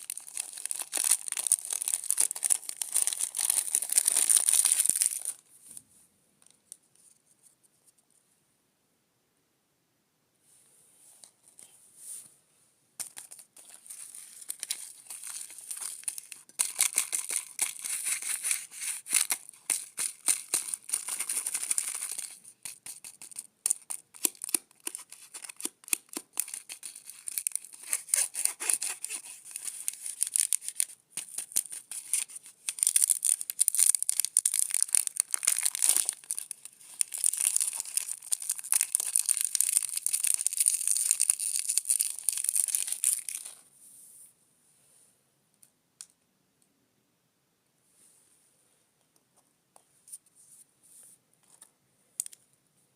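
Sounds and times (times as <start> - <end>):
plastic wrapper crinkling: 0.0 - 5.4, 13.0 - 43.6.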